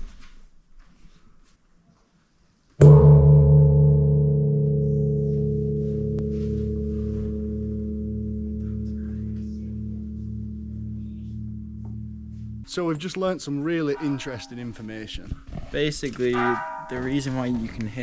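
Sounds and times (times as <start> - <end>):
large gong struck and ringing: 2.8 - 12.7, 16.4 - 17.4.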